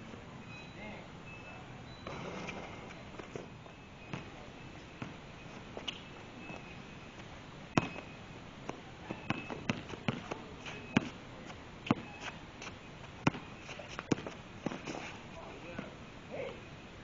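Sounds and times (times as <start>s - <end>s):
basketball bouncing on court: 2.0s - 3.3s, 4.0s - 4.4s, 5.0s - 5.2s, 7.7s - 11.2s, 11.8s - 12.3s, 13.2s - 14.9s.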